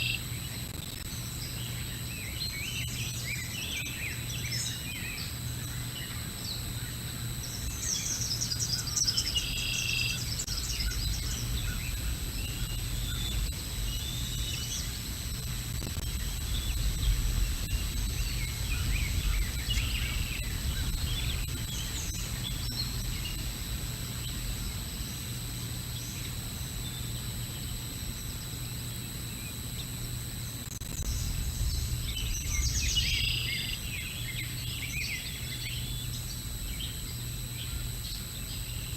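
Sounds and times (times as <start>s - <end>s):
high electronic whine: 0.0s - 38.9s
songbirds chirping: 1.2s - 30.0s, 31.0s - 38.9s
low outdoor rumble: 10.2s - 25.7s, 29.8s - 34.6s.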